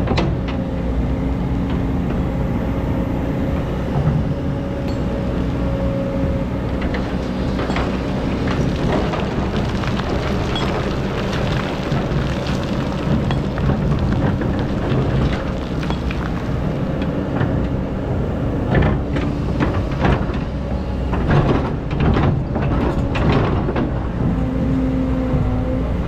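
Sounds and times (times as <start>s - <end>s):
excavator diesel engine running: 0.0s - 26.0s
bucket clanking and scraping gravel: 6.7s - 17.2s.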